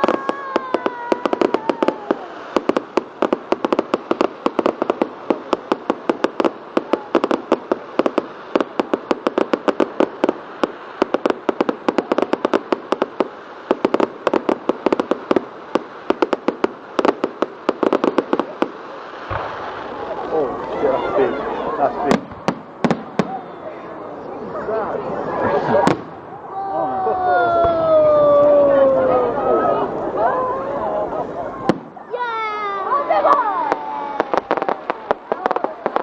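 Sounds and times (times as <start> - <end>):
fireworks cracking and popping: 0.0 - 23.6, 25.1 - 26.3, 31.6 - 36.0
steady hiss: 0.0 - 26.4.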